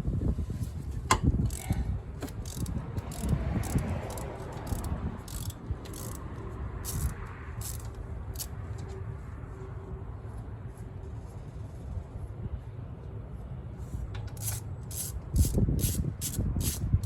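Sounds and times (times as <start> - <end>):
socket ratchet clicking: 1.4 - 8.5, 14.2 - 16.9.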